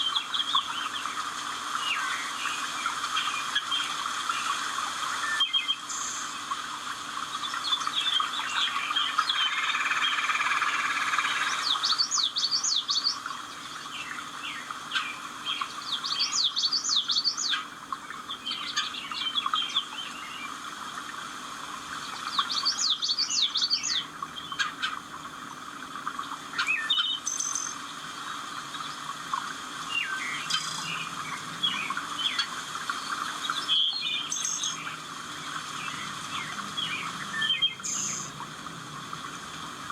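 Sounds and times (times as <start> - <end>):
steady background hiss: 0.0 - 39.9
birds singing whistled phrases: 5.2 - 6.4, 7.4 - 13.3, 13.9 - 17.7, 22.1 - 24.8, 26.6 - 27.9, 29.9 - 35.0, 35.8 - 38.4.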